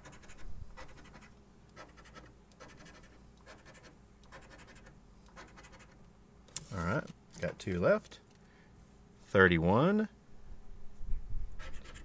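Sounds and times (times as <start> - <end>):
lottery ticket being scratched: 0.0 - 8.2.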